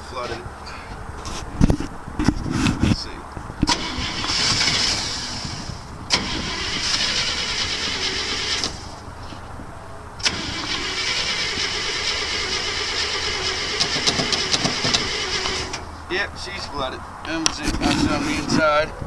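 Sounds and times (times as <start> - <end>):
engine cranking on starter: 3.7 - 8.9, 10.2 - 15.8.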